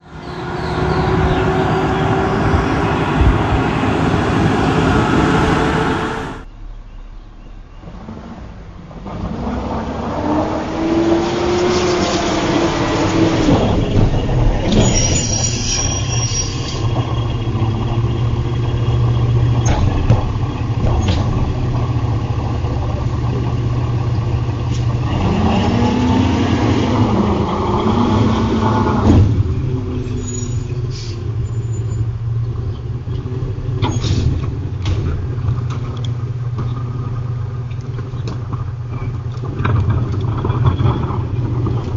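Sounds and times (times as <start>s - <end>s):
garbage truck engine revving: 0.0s - 6.5s, 7.9s - 37.2s
hydraulic whine: 0.0s - 6.7s, 7.8s - 32.3s.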